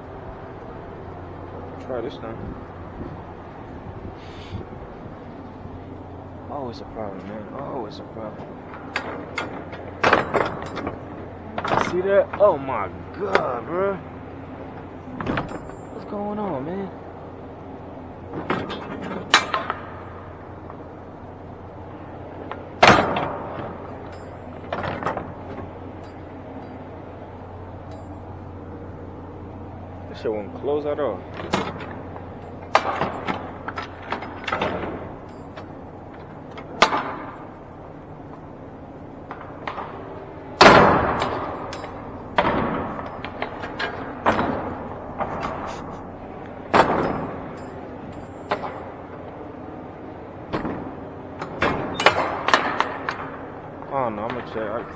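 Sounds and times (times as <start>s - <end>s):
low hum: 0.0s - 54.9s
truck door clanking and banging: 6.6s - 16.8s, 18.1s - 21.0s, 21.6s - 28.6s, 30.2s - 54.9s
latch clicks and knocks: 8.4s - 13.6s, 50.5s - 53.4s.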